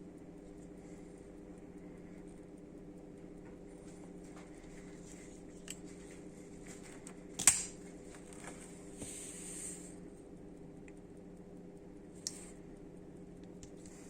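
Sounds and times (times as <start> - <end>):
folding knife clicks: 7.4 - 7.7
knife snapping open: 7.4 - 7.7.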